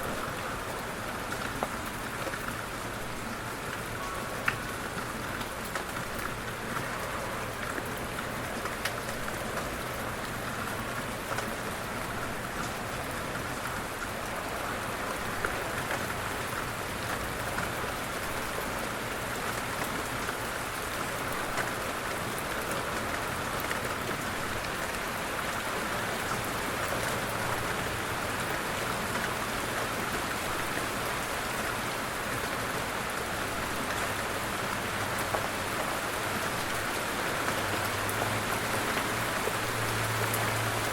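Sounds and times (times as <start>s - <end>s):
individual raindrop ticks: 0.0s - 3.0s, 3.6s - 30.2s
light rain falling: 0.0s - 40.9s.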